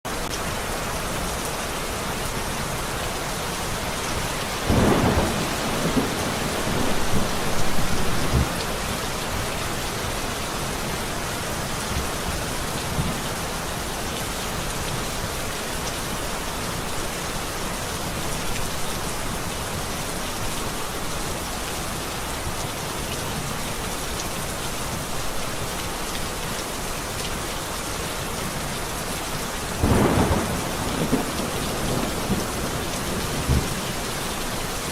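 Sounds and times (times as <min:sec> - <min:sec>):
steady rain falling: 0:00.1 - 0:34.9
thunder rumbling: 0:04.6 - 0:09.4, 0:29.8 - 0:33.8.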